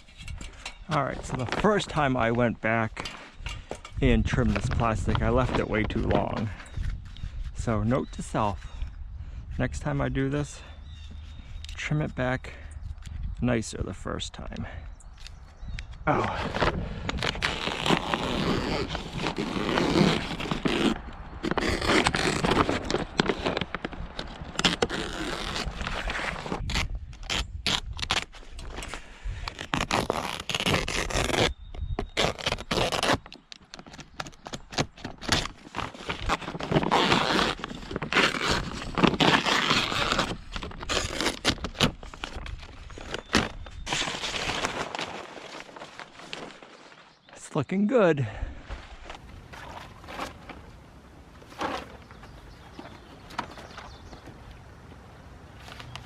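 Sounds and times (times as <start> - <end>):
plastic sheeting scraping and crinkling: 16.2 - 33.4, 34.7 - 47.2, 48.9 - 54.2.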